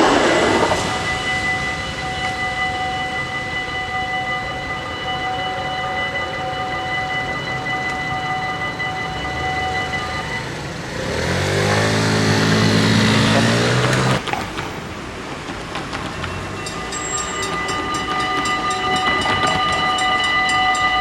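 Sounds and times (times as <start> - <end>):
level crossing bells: 0.0 - 14.2, 16.4 - 21.0
vehicle humming: 7.1 - 21.0.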